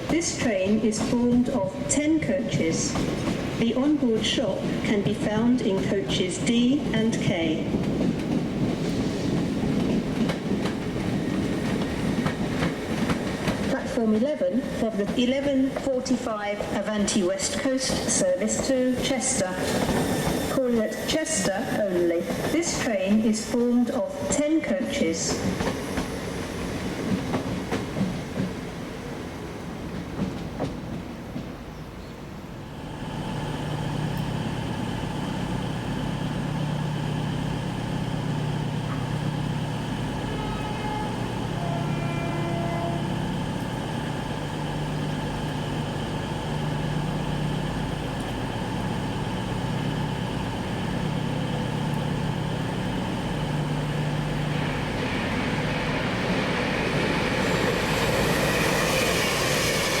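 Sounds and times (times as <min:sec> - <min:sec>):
train rushing noise: 0:00.0 - 0:31.8, 0:32.4 - 1:00.0
train humming: 0:00.0 - 1:00.0
train whines: 0:00.0 - 1:00.0.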